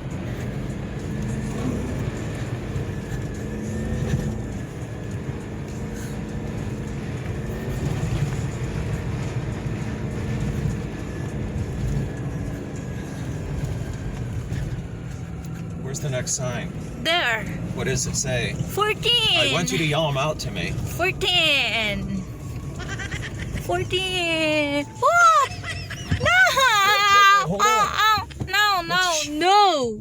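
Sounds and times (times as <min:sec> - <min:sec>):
car engine rumbling: 0:00.0 - 0:30.0.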